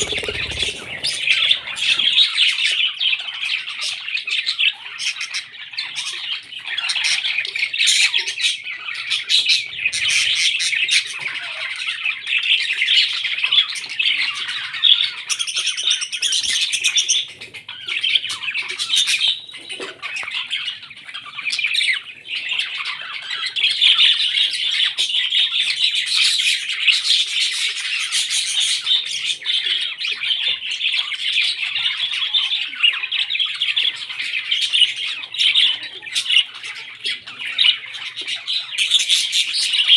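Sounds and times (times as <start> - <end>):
parrots chattering: 0.0 - 4.1.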